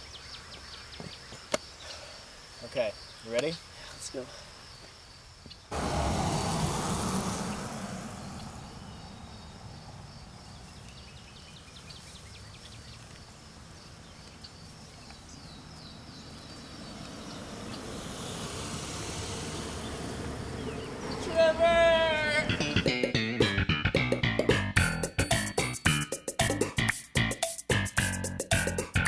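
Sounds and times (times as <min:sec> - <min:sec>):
insects chirping: 0:00.0 - 0:22.9
loud rush of noise: 0:05.7 - 0:11.6, 0:16.0 - 0:22.9
low rumble: 0:05.7 - 0:12.2.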